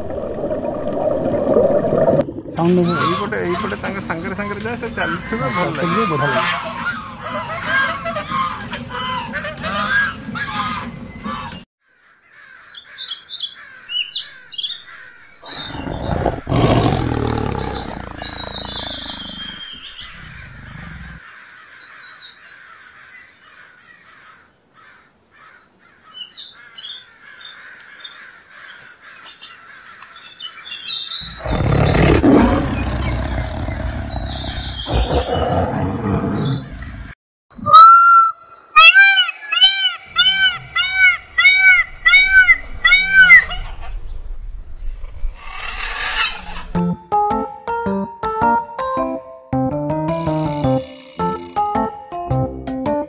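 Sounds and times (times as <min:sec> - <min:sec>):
small birds chirping: 0:12.3 - 0:37.6
high arching calls: 0:12.6 - 0:43.9
lion roaring: 0:15.4 - 0:21.2, 0:31.2 - 0:36.8.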